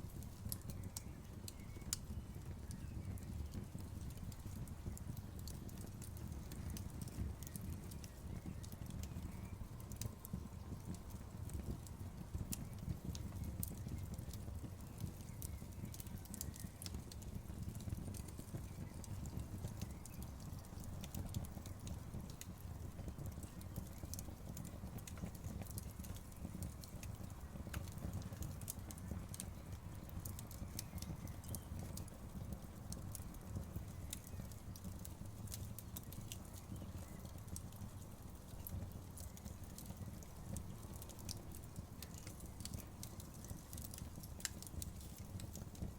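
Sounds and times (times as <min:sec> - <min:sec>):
low rumble of burning fire: 0:00.0 - 0:45.9
campfire pops and snaps: 0:00.1 - 0:45.9.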